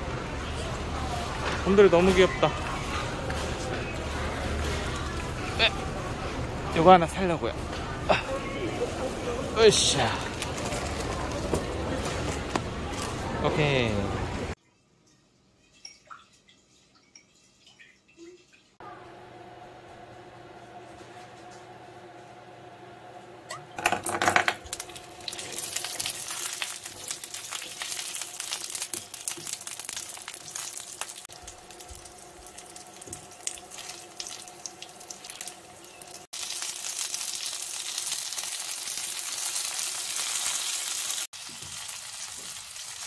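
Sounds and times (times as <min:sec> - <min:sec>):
dumplings sizzling in frying pan: 0:24.7 - 0:43.0.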